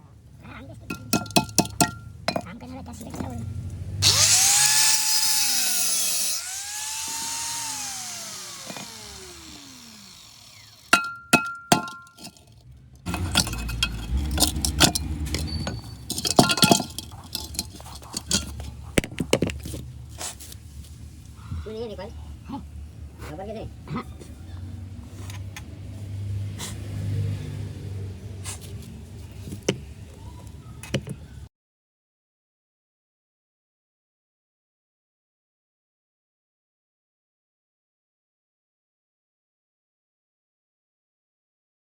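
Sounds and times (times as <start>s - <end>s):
low mechanical hum: 2.8s - 11.0s
motor whine winding down: 4.0s - 10.9s
electric cutting tool on metal: 4.0s - 11.0s
metal parts clattering: 10.9s - 19.8s
ringing metallic clinks: 13.1s - 17.6s.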